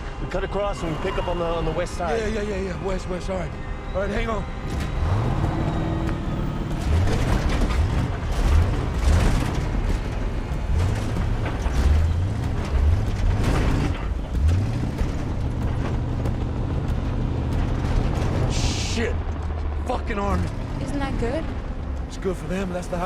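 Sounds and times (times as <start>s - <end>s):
truck body rattling over bumps: 4.2s - 23.0s
truck engine revving hard: 4.6s - 21.9s.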